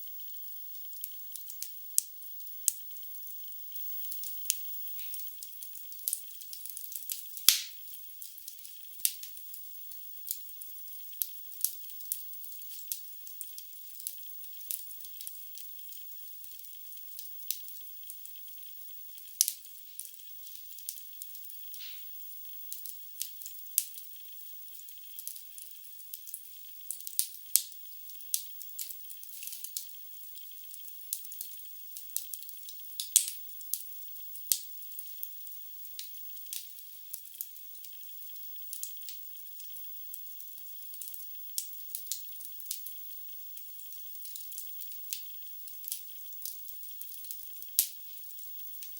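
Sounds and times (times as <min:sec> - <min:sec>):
faint steady hiss: 0:00.0 - 0:48.9
wood fire crackling and popping: 0:07.1 - 0:07.8, 0:33.0 - 0:33.4.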